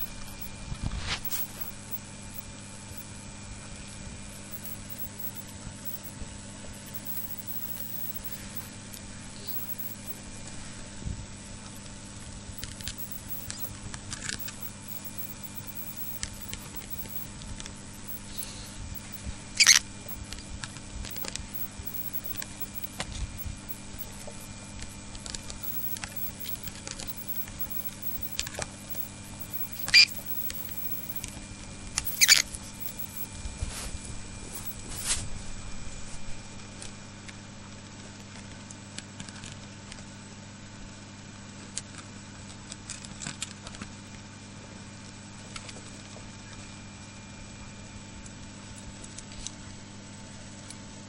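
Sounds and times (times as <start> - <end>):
small scratchy clicks: 0.0 - 3.2, 3.8 - 10.6, 12.6 - 33.3, 34.5 - 35.2
cockatiel calling: 19.6 - 19.8, 25.7 - 31.2, 32.0 - 33.1.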